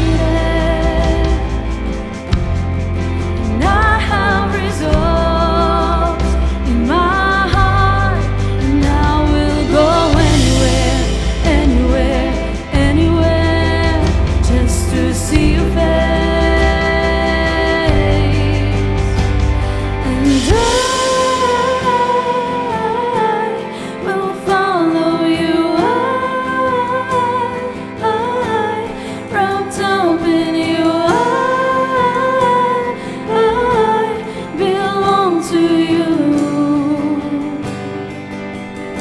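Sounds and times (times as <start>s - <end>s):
band accompaniment: 0.0s - 22.5s
person singing worship song: 0.0s - 38.3s.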